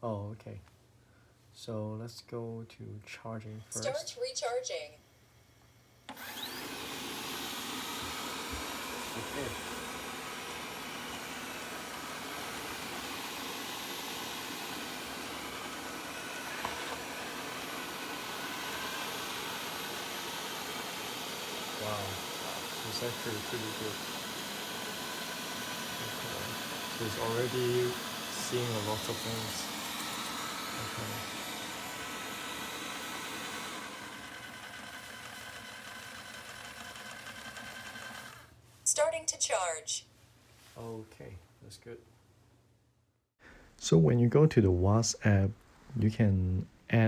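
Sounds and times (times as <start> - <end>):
robot vacuum hissing: 6.1 - 38.4.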